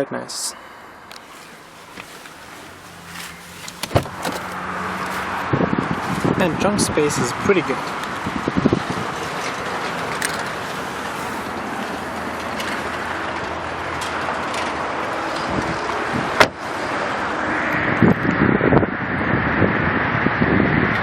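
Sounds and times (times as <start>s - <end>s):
traffic noise: 0.0s - 21.0s
wind on microphone: 5.0s - 12.5s, 15.4s - 21.0s.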